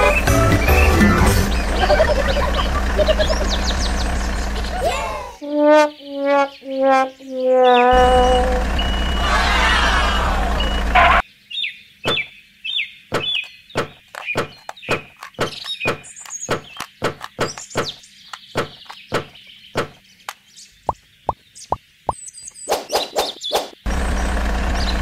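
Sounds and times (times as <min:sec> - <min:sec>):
loud music: 0:00.0 - 0:02.0
engine-like noise: 0:00.0 - 0:05.4, 0:07.9 - 0:11.2, 0:23.9 - 0:25.0
birds chirping: 0:00.0 - 0:25.0
stones clacking into plastic toy truck: 0:13.2 - 0:19.3.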